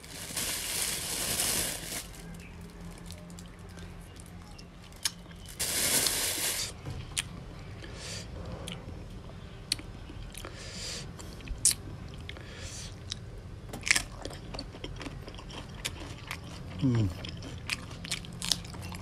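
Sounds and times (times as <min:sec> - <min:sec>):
wet chewing and mouth smacking: 0:13.9 - 0:19.0.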